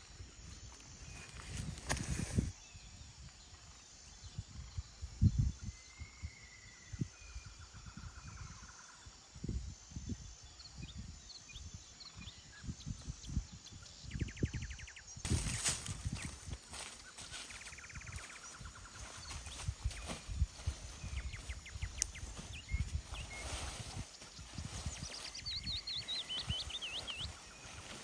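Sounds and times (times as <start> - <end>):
leaves rustling: 0.6 - 2.5, 15.3 - 28.0
small birds chirping: 10.4 - 28.0
bird trill: 16.2 - 28.0.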